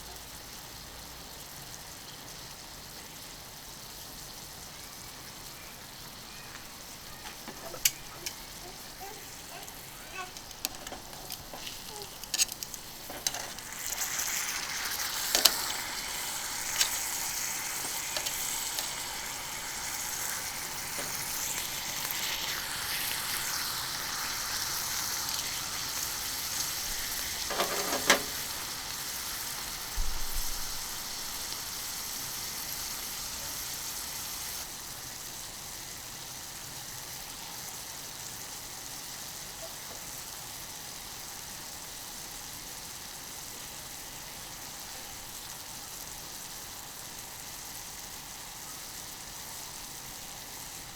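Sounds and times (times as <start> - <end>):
food sizzling on a griddle: 0.0 - 50.9
utensils clicking and knocking: 7.3 - 19.3, 20.6 - 21.6, 27.4 - 28.7.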